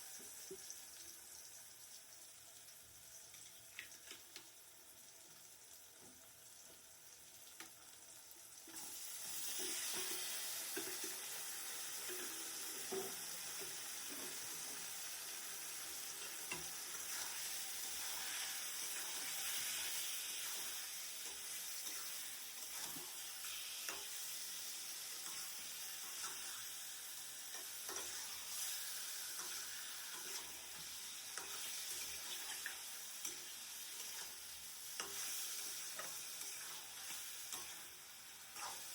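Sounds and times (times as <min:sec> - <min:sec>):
food sizzling in hot oil: 0:00.0 - 0:38.9
spoon stirring in pan: 0:08.8 - 0:38.9.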